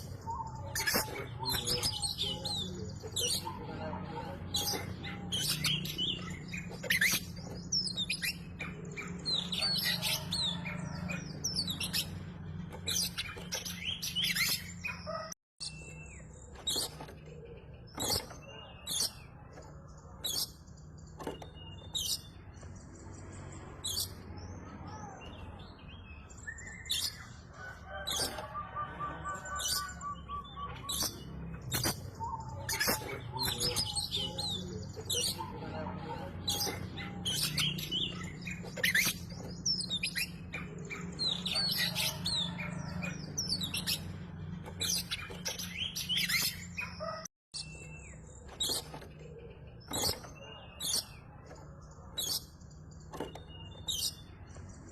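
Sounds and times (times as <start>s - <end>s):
bird chirping and whistling: 0.0s - 12.2s, 12.8s - 17.0s, 26.1s - 35.6s, 36.2s - 48.9s.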